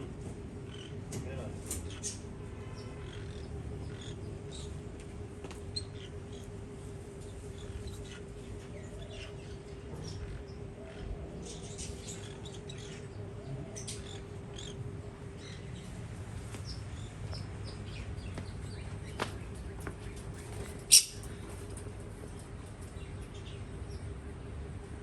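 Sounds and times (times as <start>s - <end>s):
faint steady hum: 0.0s - 25.0s
small birds chirping: 0.0s - 25.0s.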